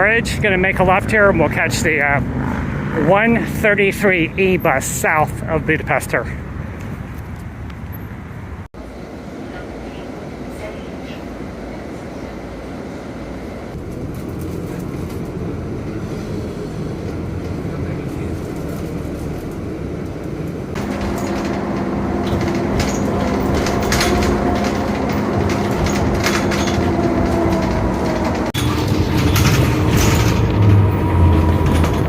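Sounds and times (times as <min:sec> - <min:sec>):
bus engine and road rumble: 0:00.0 - 0:32.0
engine hum with steady tones: 0:00.0 - 0:32.0
rattling clicks: 0:18.4 - 0:32.0.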